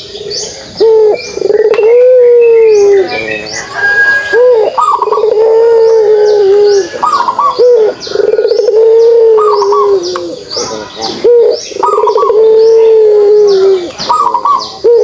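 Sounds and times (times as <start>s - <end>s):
dove cooing: 0.0s - 15.0s
small birds chirping: 0.0s - 15.0s.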